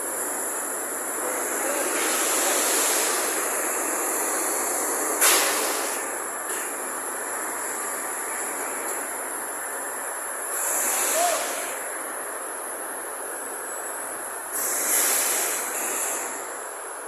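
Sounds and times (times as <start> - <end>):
machinery noise with high whine: 0.0 - 17.0
hissing bursts: 1.4 - 6.1, 10.5 - 11.9, 14.5 - 16.4.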